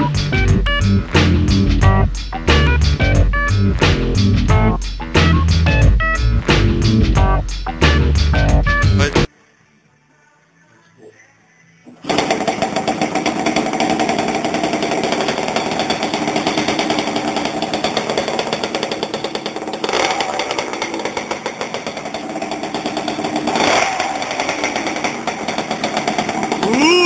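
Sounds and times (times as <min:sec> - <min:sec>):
engine throttle blips: 0:12.0 - 0:27.0
two-stroke engine buzzing: 0:12.0 - 0:27.0.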